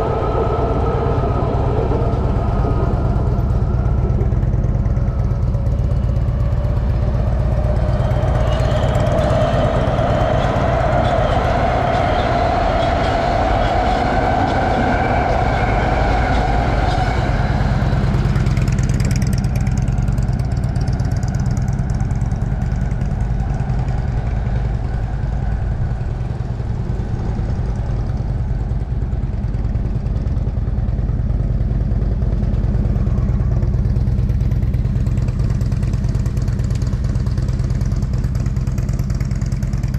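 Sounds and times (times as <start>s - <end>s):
motorcycle engine running: 0.0s - 14.0s, 15.6s - 39.9s
steady low rumble: 0.0s - 39.9s.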